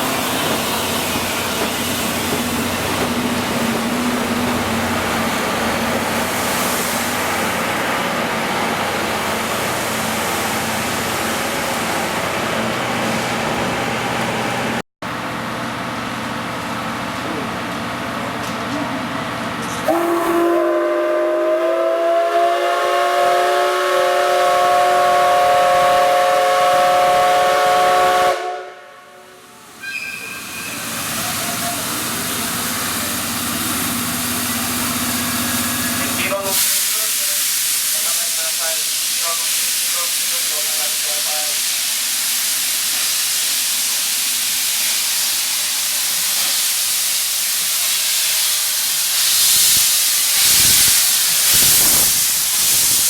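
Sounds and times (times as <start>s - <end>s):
steam venting hiss: 0.0s - 7.9s, 30.6s - 53.0s
steam locomotive whistle: 19.9s - 30.8s.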